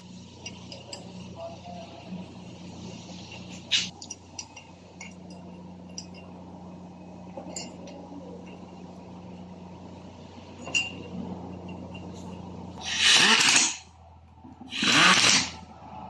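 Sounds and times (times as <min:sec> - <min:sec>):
steady low hum: 0:00.0 - 0:16.0
light metallic clinks: 0:03.2 - 0:06.5, 0:07.3 - 0:09.4.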